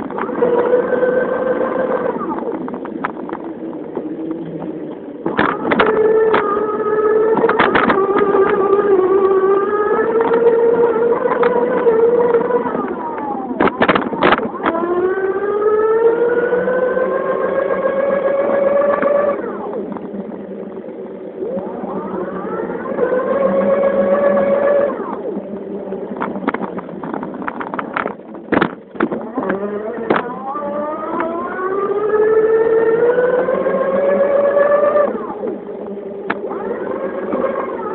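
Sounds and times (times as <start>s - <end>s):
electric bike motor whining: 0.0s - 37.9s
sharp clicks and knocks: 1.9s - 9.2s, 10.0s - 10.5s, 11.1s - 14.9s, 26.1s - 31.6s.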